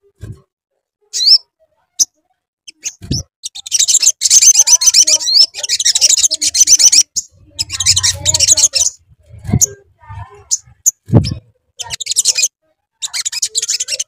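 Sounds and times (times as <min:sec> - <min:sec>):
bird chirping and twittering: 0:01.1 - 0:14.0.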